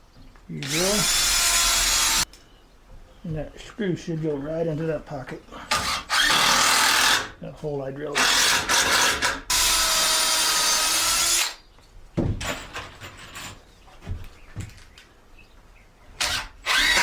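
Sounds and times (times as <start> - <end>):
power drill driving a screw: 0.6 - 2.3, 5.7 - 7.3, 8.2 - 11.6, 16.2 - 17.0.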